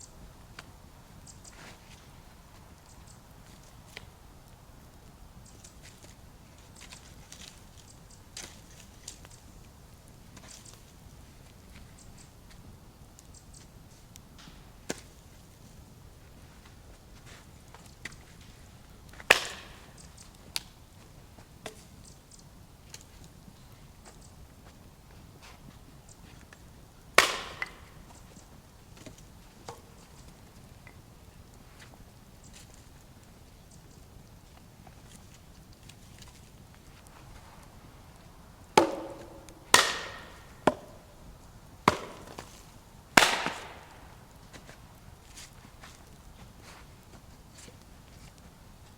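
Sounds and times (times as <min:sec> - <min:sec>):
axe chopping wood: 0:19.3 - 0:19.9, 0:27.2 - 0:28.1, 0:38.8 - 0:41.2, 0:41.8 - 0:44.1
light wood knocks: 0:38.8 - 0:41.1.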